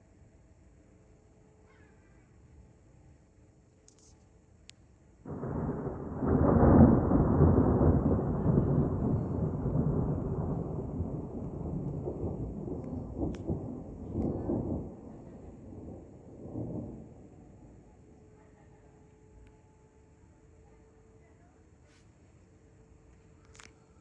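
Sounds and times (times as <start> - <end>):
thunder rolling rumble: 5.3 - 17.9.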